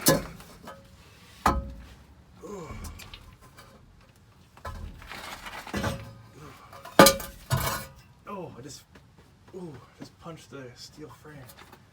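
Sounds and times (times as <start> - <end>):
scraping and shuffling: 0.0 - 8.0, 11.0 - 11.9.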